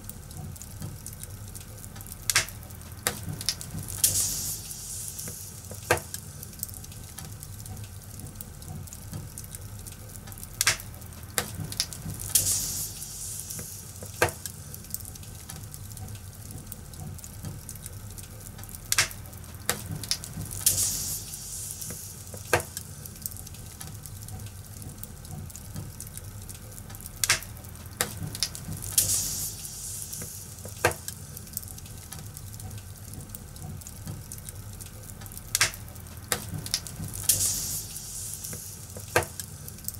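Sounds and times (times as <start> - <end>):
fire crackling: 0.0 - 39.9
low steady rumble: 0.0 - 39.9
soft hiss: 1.2 - 7.5, 9.5 - 15.8, 20.2 - 24.1, 28.5 - 33.5, 34.6 - 39.9.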